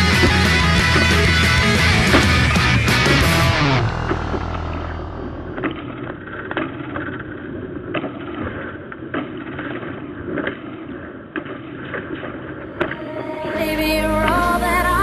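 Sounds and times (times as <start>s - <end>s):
knocks and clicks: 0.0s - 4.9s
rumbling wind: 0.0s - 15.0s.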